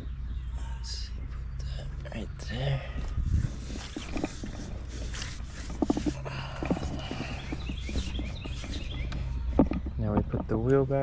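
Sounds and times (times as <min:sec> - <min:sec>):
bird chirping: 0:00.0 - 0:11.0
steady low hum: 0:00.0 - 0:11.0
tools knocking and clattering: 0:05.6 - 0:10.8.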